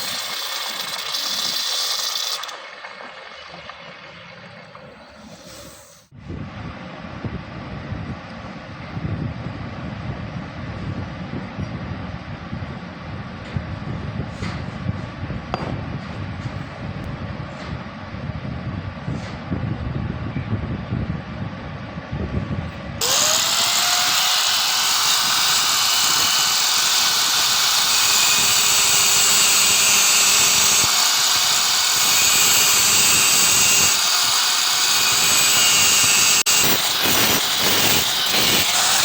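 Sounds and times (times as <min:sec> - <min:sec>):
electric power tool running: 0:00.0 - 0:02.7, 0:23.0 - 0:39.0.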